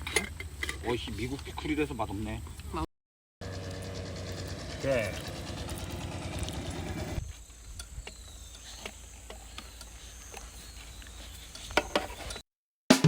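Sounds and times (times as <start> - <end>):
faint insect chirping: 7.2 - 12.4.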